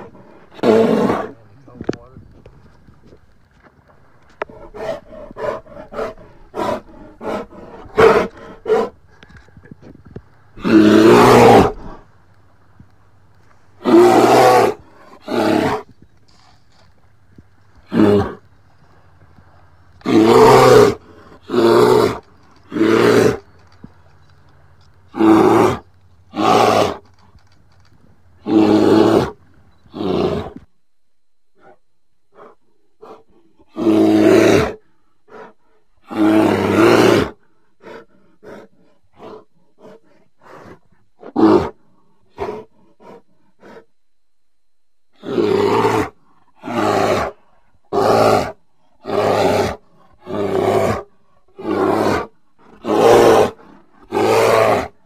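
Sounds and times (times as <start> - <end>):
bear roaring: 0.0 - 1.5, 4.4 - 9.5, 10.6 - 12.1, 13.8 - 15.9, 17.8 - 18.5, 20.0 - 23.7, 25.1 - 27.5, 28.4 - 30.6, 32.4 - 43.9, 45.2 - 55.0.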